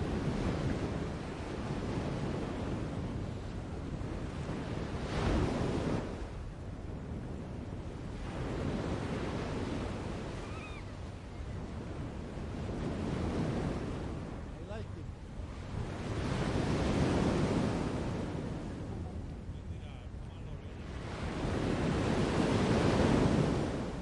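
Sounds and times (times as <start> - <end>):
faint bird call: 10.4 - 11.6.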